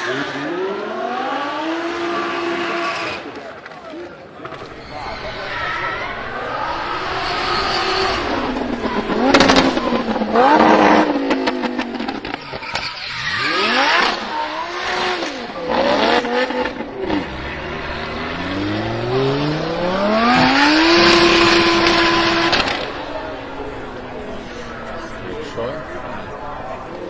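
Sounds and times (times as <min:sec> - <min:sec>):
tyre squeal: 0:04.6 - 0:23.4
car engine revving hard: 0:04.6 - 0:27.0.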